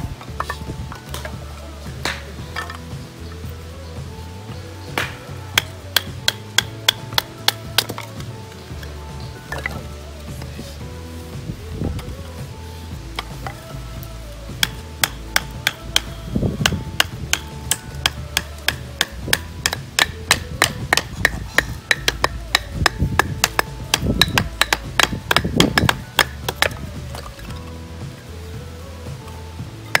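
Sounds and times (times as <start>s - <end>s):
hammer driving tent pegs: 14.6s - 27.0s.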